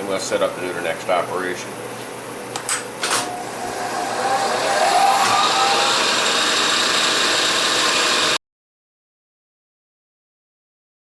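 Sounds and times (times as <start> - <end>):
milling machine motor whine: 3.0 - 8.4.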